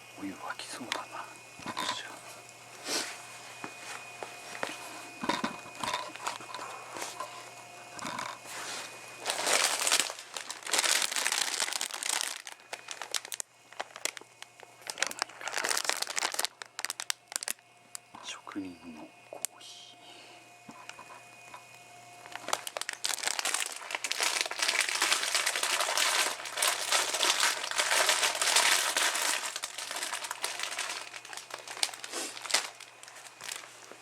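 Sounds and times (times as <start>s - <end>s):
plastic packet crinkling: 1.6s - 2.1s, 5.2s - 7.4s, 8.0s - 8.4s, 9.2s - 17.6s, 22.2s - 34.0s.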